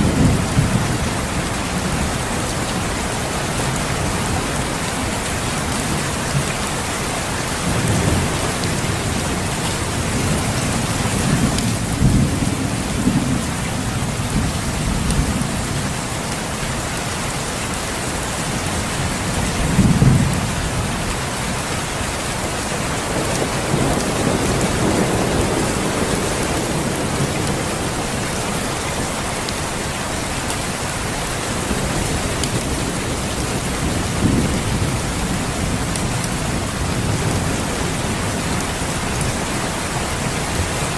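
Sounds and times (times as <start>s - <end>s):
low thunder rumbles: 0.0s - 2.2s, 7.4s - 15.8s, 23.0s - 29.8s
steady rain: 0.0s - 40.9s.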